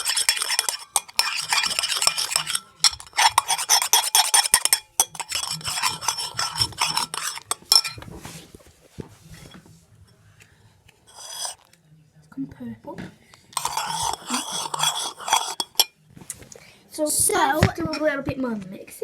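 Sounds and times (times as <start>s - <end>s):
utensil stirring slime in a bowl: 0.0s - 9.7s, 11.0s - 11.7s, 13.5s - 15.9s.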